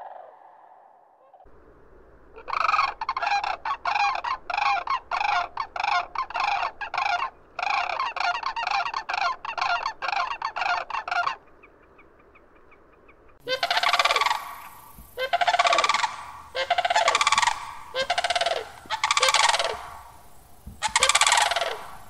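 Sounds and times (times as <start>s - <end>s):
crane rattling bugle call: 13.4s - 22.0s.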